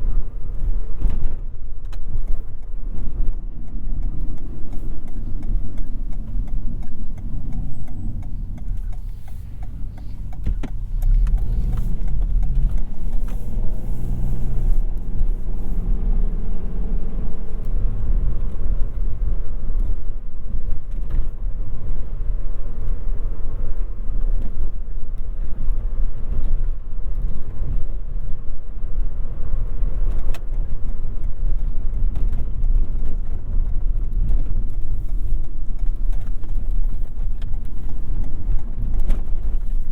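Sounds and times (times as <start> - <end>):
road and tyre rumble: 0.0 - 39.9
faint car engine tone: 2.1 - 26.5.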